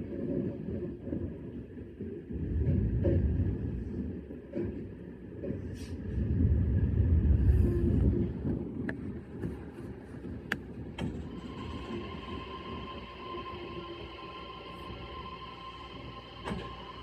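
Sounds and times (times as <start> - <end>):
electric train rumble: 0.0 - 17.0.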